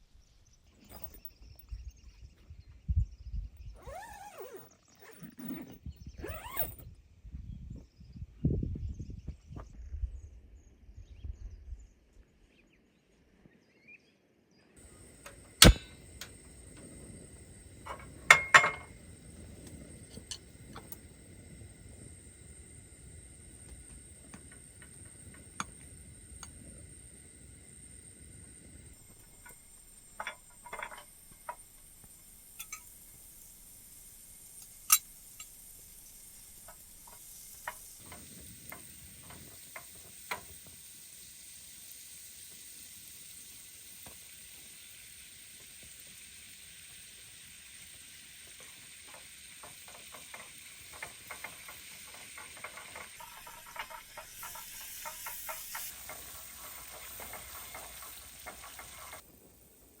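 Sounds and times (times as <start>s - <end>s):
food sizzling in a pan: 14.8s - 60.0s
utensil clinking while stirring: 17.6s - 21.1s, 29.0s - 31.6s, 32.5s - 33.0s, 48.5s - 59.2s.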